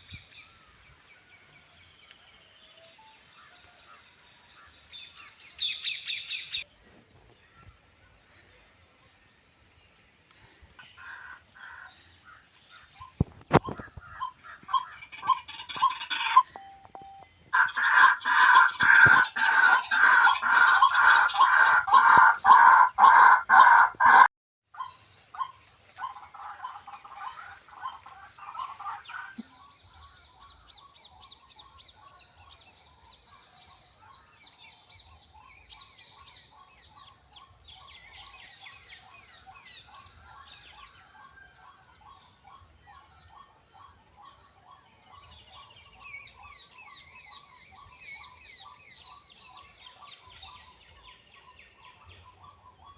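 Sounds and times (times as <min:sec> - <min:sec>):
quieter mixed bird chirps: 0:00.0 - 0:52.9
loud repeated bird calls: 0:10.8 - 0:52.9.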